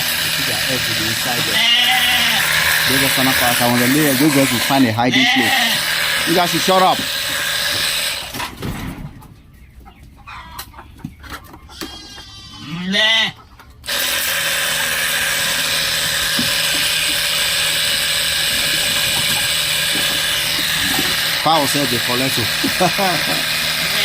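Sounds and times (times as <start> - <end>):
farm animal call: 0.0 - 8.2, 9.2 - 24.0.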